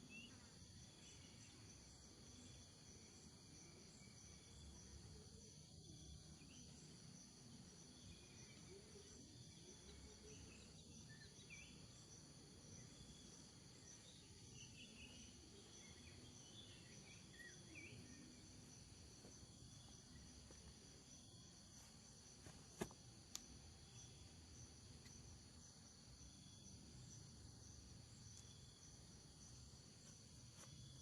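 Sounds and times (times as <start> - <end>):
crickets and insects trilling: 0.0 - 31.0.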